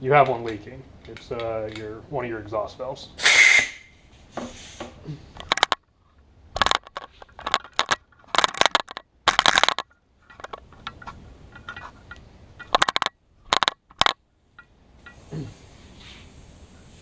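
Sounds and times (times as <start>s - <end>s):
compressed air hissing: 3.2s - 5.4s, 15.0s - 17.0s
crackling clicks: 5.4s - 15.2s.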